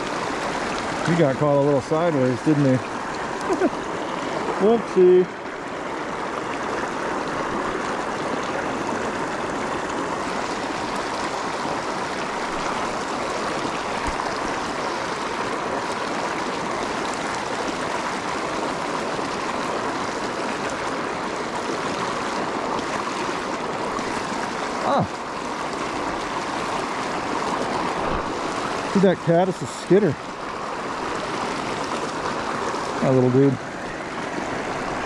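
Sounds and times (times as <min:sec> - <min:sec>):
creek water rushing: 0:00.0 - 0:35.0.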